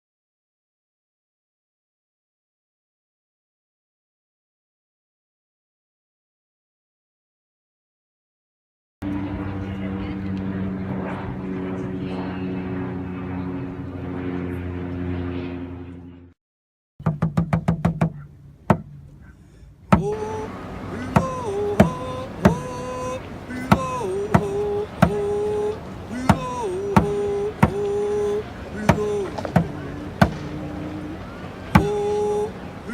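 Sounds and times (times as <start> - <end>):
propeller plane engine droning: 9.0 - 16.4, 18.1 - 32.9
drum beating: 17.0 - 19.0, 19.9 - 22.9, 23.5 - 28.1, 28.8 - 30.8, 31.7 - 32.3
rattle of knocks: 17.0 - 19.0
person singing long notes: 19.9 - 32.9.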